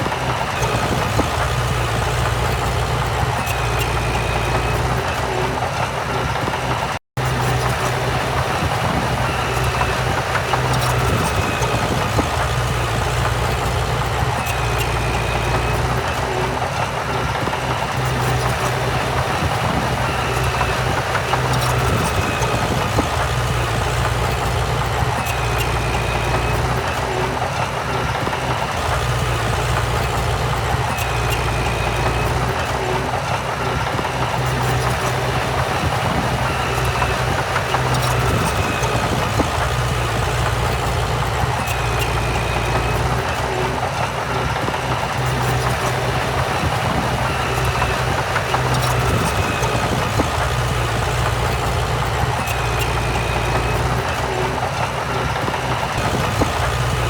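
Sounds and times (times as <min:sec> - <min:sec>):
heavy diesel machinery droning: 0:00.0 - 0:57.0.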